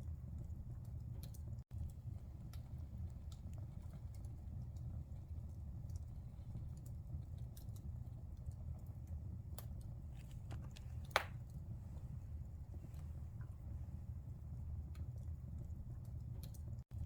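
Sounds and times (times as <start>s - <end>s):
fire crackles: 0.0s - 17.0s
fire flames rumbling: 0.0s - 17.0s
loud pop from fire: 11.0s - 11.4s.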